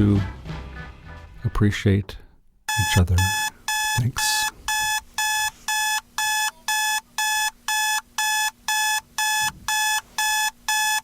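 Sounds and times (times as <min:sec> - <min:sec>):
electronic alarm beeping: 0:02.7 - 0:11.0.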